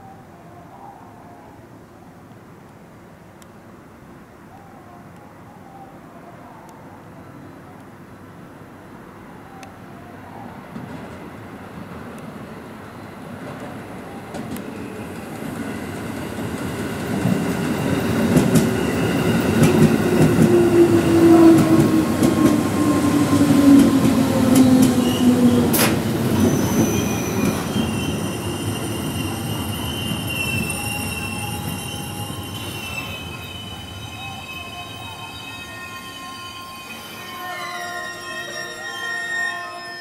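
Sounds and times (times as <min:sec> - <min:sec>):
electric train whine: 0:10.6 - 0:40.0
wheel and brake squeal: 0:24.9 - 0:40.0.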